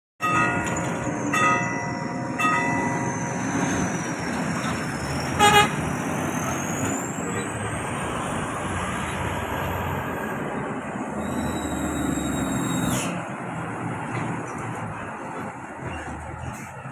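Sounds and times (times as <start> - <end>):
road traffic: 0.2 - 16.9
horn toot: 5.3 - 5.8.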